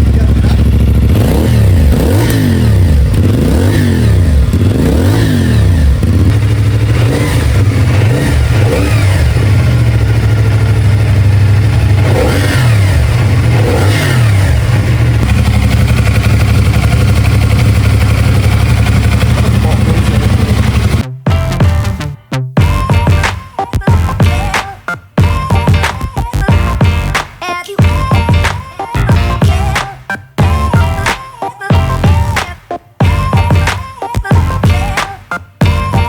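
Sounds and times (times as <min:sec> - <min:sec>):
motorcycle engine revving: 0:00.0 - 0:21.1.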